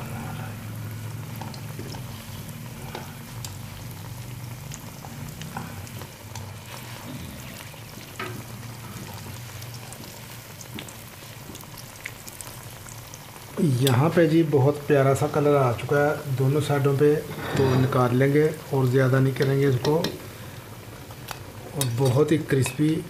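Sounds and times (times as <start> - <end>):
food sizzling in hot fat: 0.0 - 23.0
metal tongs clicking on pan: 21.3 - 23.0.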